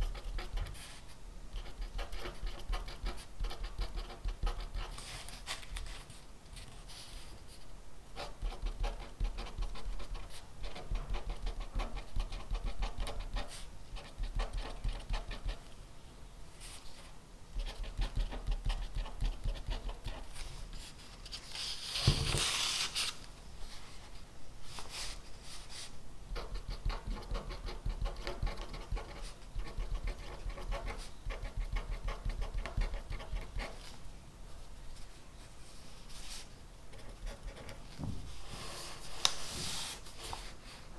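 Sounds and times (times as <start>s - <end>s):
pen scratching on paper: 0.0s - 0.9s, 1.6s - 5.3s, 8.2s - 15.6s, 26.4s - 33.8s.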